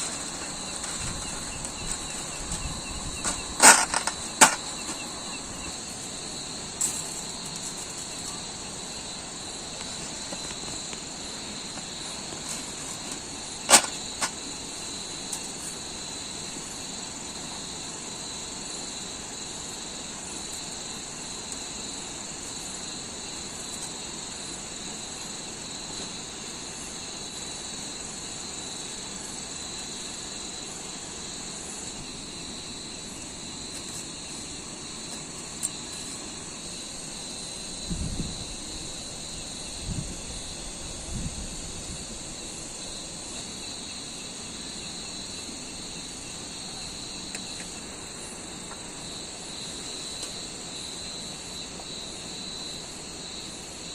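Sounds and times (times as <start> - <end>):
background hiss: 0.0 - 53.9
high insect chorus: 0.0 - 53.9.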